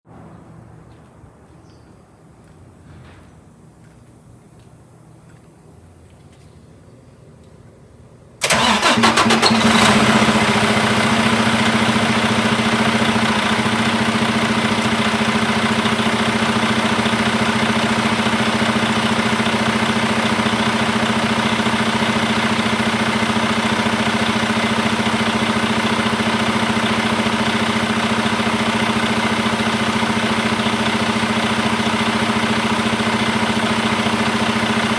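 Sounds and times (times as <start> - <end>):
diesel truck engine idling: 8.4 - 34.9.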